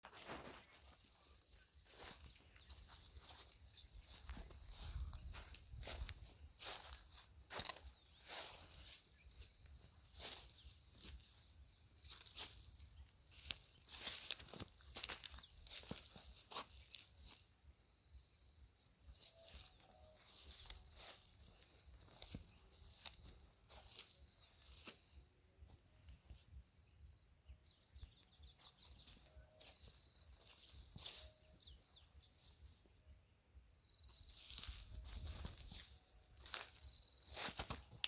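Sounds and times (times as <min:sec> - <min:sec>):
insects trilling: 0:00.1 - 0:38.0.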